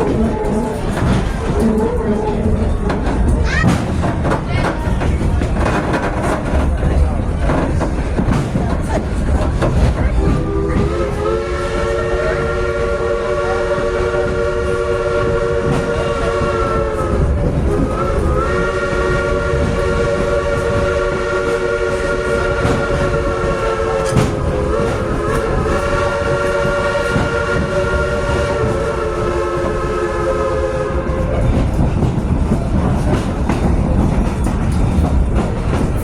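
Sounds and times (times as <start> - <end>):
train rumbling on rails: 0.0 - 36.0
locomotive chime horn: 10.4 - 31.3.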